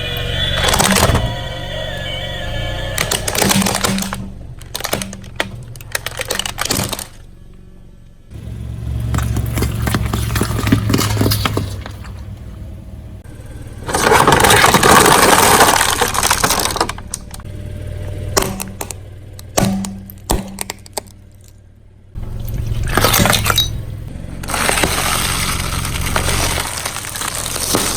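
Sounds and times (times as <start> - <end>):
low engine hum: 0.0 - 27.9
tyre crushing brittle objects: 3.0 - 7.3, 9.0 - 12.2, 13.8 - 17.4, 18.4 - 21.6, 22.4 - 23.8, 24.4 - 27.9.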